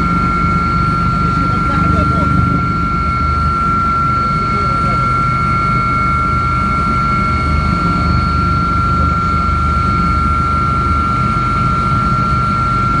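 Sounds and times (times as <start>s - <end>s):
helicopter rotor rumble: 0.0s - 13.0s
high-pitched whine: 0.0s - 13.0s.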